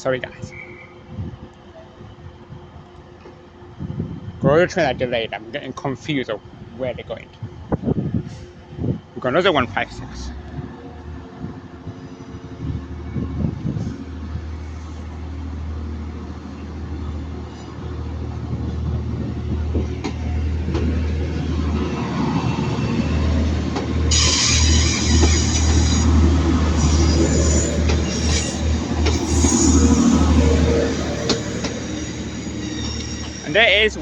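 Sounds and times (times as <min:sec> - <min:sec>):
diesel train engine drone: 0:00.0 - 0:34.0
high-pitched brake squeal: 0:00.4 - 0:01.1, 0:24.1 - 0:34.0.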